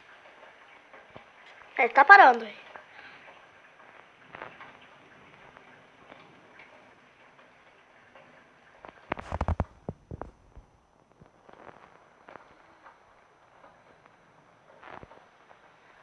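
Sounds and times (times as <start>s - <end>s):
faint steady hiss: 0.0s - 16.0s
sharp clicks and knocks: 9.1s - 10.7s.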